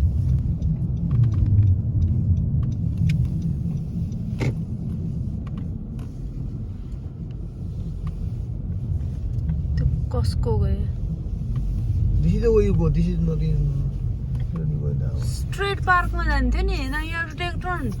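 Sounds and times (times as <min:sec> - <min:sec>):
engine and tyres rumbling: 0:00.0 - 0:18.0
sharp tick: 0:00.2 - 0:05.6.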